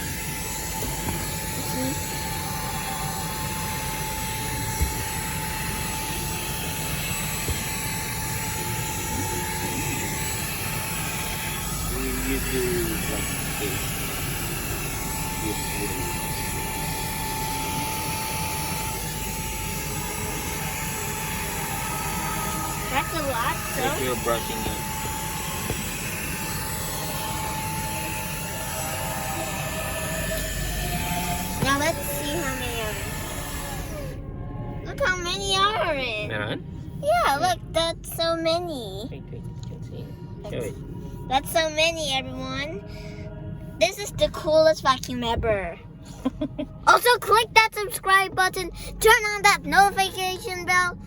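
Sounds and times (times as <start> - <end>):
handheld vacuum cleaner whine: 0.0 - 37.8.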